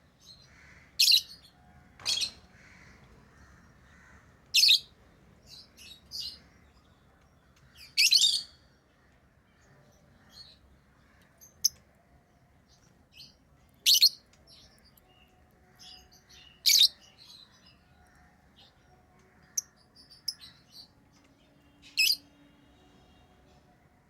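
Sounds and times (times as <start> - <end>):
lovebirds chirping: 12.7 - 23.3.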